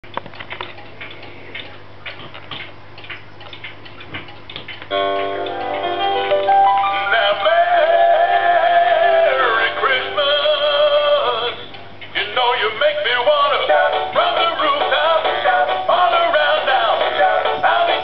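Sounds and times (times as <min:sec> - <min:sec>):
electronic backing music: 0:04.9 - 0:10.1.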